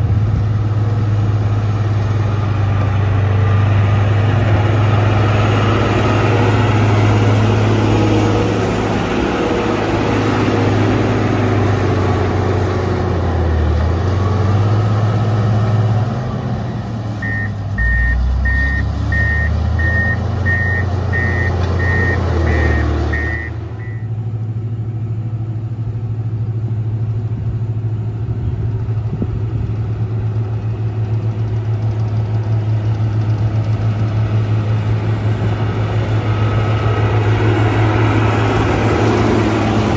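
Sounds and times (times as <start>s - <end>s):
diesel engine running: 0.0s - 39.9s
reversing alarm beeping: 17.2s - 24.1s.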